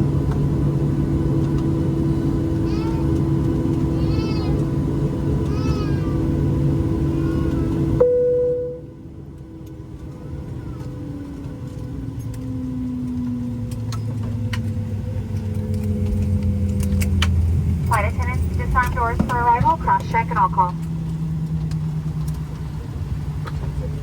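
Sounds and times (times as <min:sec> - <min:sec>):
airplane cabin engine drone: 0:00.0 - 0:24.0
jet engine whine winding down: 0:00.0 - 0:24.0
young child crying out: 0:02.6 - 0:03.2, 0:03.9 - 0:04.6, 0:05.4 - 0:06.3, 0:07.1 - 0:07.8.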